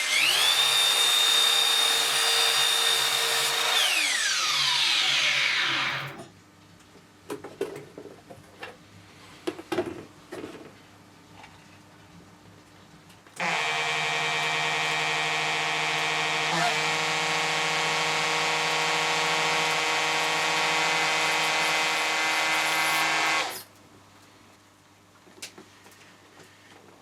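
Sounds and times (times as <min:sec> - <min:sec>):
small power tool motor running: 0:00.0 - 0:06.2, 0:13.4 - 0:23.7.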